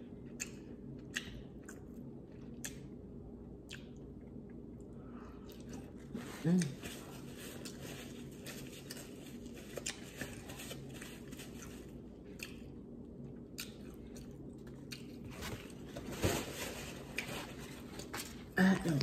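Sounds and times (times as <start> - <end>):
chewing and mouth clicks: 0.2 - 3.0, 3.6 - 15.8.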